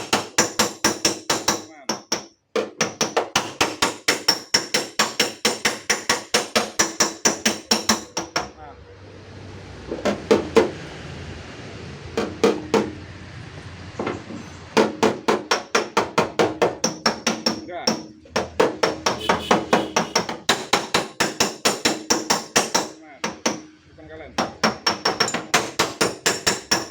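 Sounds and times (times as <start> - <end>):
hammer blows on sheet metal: 14.8 - 23.7.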